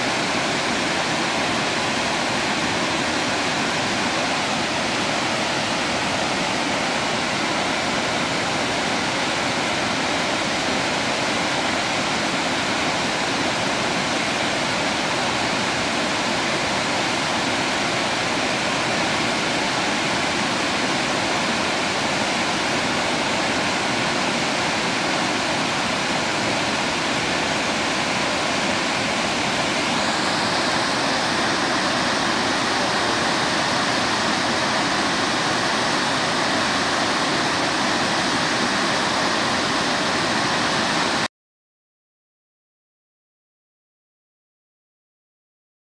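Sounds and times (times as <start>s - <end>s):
waterfall rushing: 0.0s - 41.3s.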